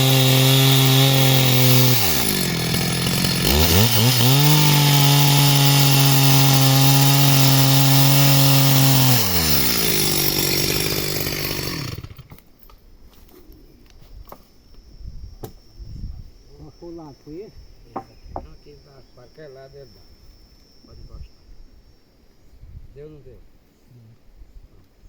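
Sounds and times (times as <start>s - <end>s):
chainsaw cutting wood: 0.0s - 12.5s.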